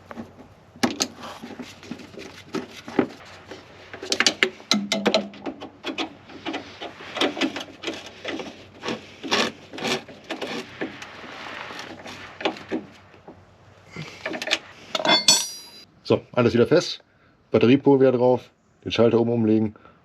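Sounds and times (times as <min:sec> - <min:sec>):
hand tools on metal: 0:00.0 - 0:13.0, 0:14.1 - 0:15.8.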